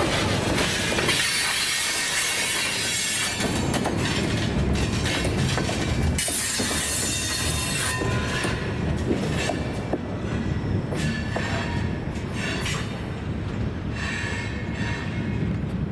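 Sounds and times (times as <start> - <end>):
freight cars rumbling: 0.0 - 15.9
train wheels squealing: 0.2 - 15.5.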